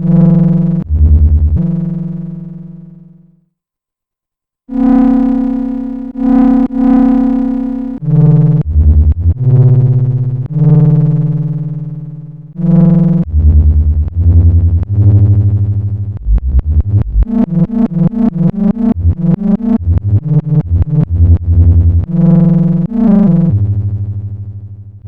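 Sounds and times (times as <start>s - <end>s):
synthesizer bass line: 0.1s - 2.3s, 8.2s - 11.4s, 12.6s - 25.0s.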